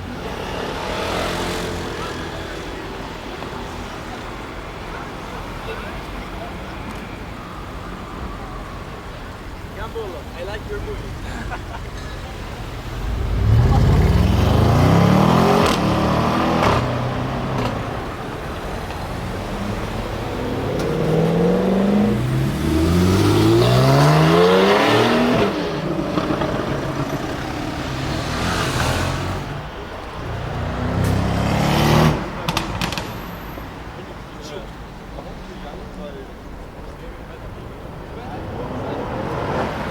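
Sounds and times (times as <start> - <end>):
car engine accelerating: 10.5 - 33.0.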